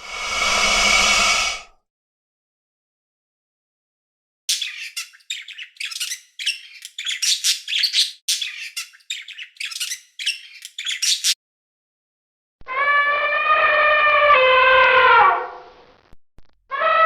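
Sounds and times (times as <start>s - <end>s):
animal long steady pitched call: 0.0s - 1.7s, 12.7s - 15.7s, 16.7s - 17.0s
animal harsh high-pitched calls: 12.7s - 15.5s, 16.7s - 17.0s.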